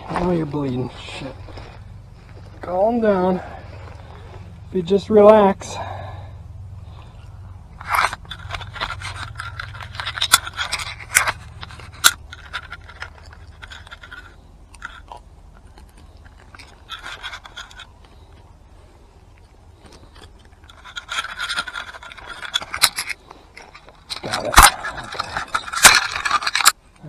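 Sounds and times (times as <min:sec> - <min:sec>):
scraping and rustling: 0:06.8 - 0:26.8.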